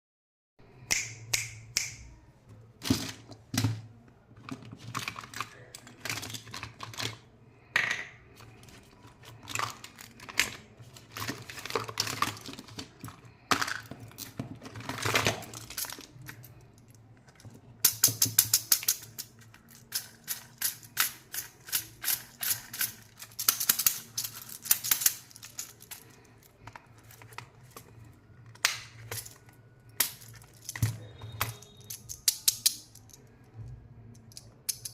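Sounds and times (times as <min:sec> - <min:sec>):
candies rattling: 0:02.8 - 0:33.4
hard candies clicking: 0:04.9 - 0:33.5, 0:34.1 - 0:34.9
plastic wrappers crinkling: 0:08.4 - 0:16.6.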